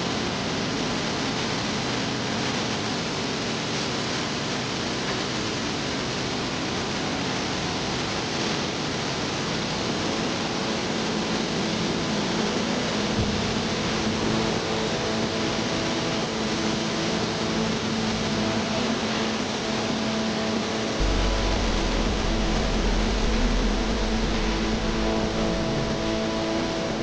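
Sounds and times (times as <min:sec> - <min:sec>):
faint low hum: 0:21.0 - 0:27.0.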